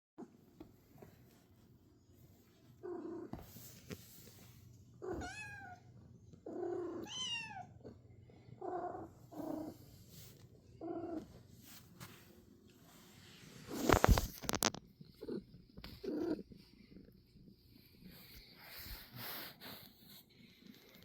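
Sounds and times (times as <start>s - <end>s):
cat meowing: 5.1s - 5.8s, 7.0s - 7.7s.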